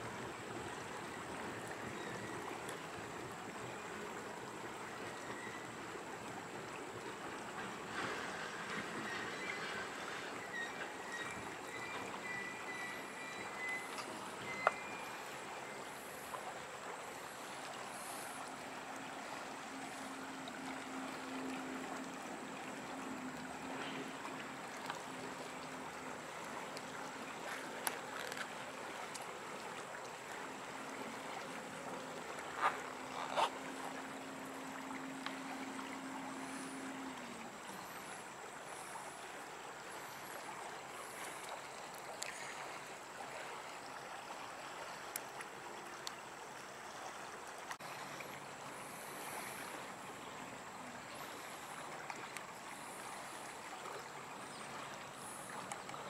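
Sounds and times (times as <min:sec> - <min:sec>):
wheels rushing on rail: 0:06.9 - 0:15.4.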